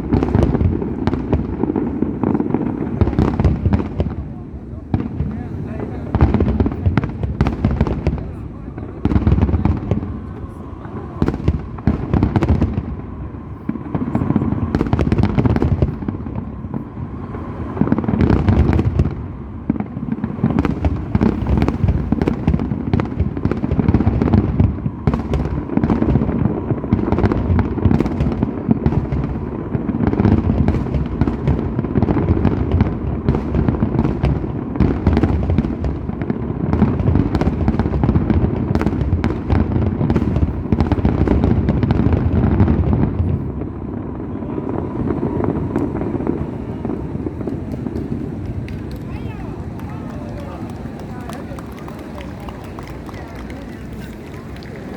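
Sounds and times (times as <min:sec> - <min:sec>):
fireworks bangs and crackles: 0:00.0 - 0:54.9
low rumble: 0:00.9 - 0:25.7.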